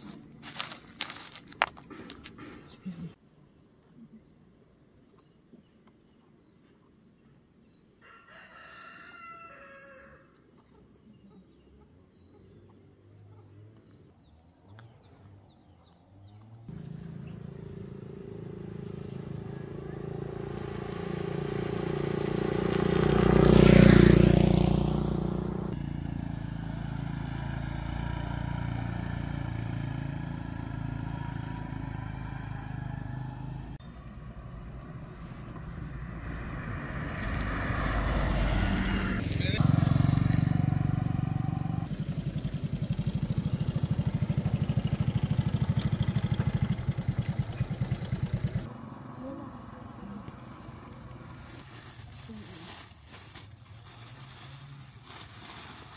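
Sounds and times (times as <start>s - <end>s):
rooster crowing: 8.0s - 10.4s
motor vehicle passing: 12.2s - 55.9s.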